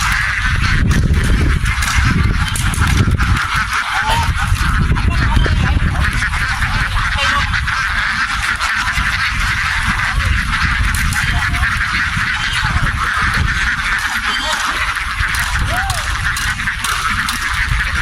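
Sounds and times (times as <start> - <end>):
ducks quacking: 0.0 - 18.0
steady low rumble: 0.0 - 18.0.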